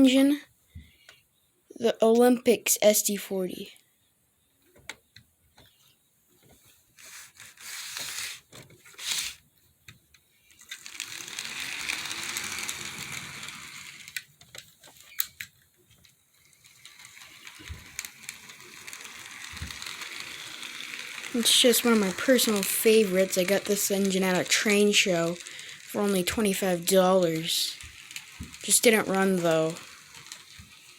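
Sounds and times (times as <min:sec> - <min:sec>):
model train gear rattle: 0:07.0 - 0:09.4, 0:10.5 - 0:15.3, 0:16.3 - 0:30.9.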